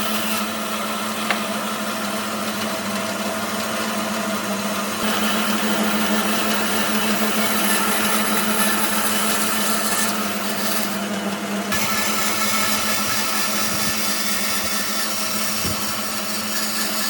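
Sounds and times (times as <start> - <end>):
power tool motor running: 0.0 - 17.0
hiss of cutting wood: 5.0 - 11.0, 11.7 - 17.0.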